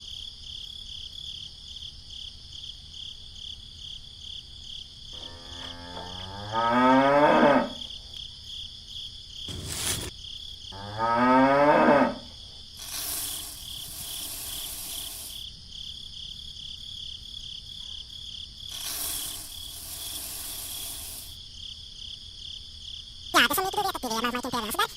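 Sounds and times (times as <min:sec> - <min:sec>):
crickets chirping: 0:00.0 - 0:24.9
cow mooing: 0:05.2 - 0:07.8, 0:10.8 - 0:12.2
brief rush of hiss: 0:09.5 - 0:10.1, 0:12.8 - 0:15.4, 0:18.7 - 0:21.4.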